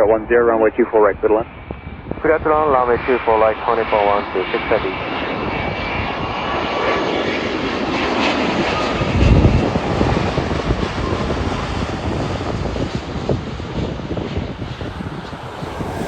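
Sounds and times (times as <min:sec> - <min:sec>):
jet engine roar: 0:00.0 - 0:16.0
low rumble: 0:09.0 - 0:16.0.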